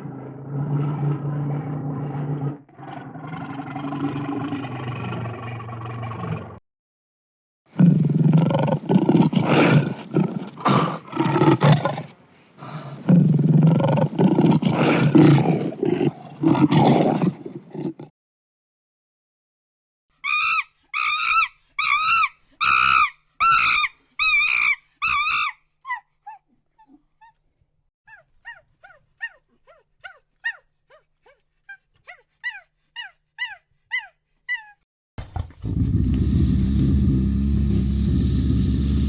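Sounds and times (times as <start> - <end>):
animal yelping: 20.2 - 27.0.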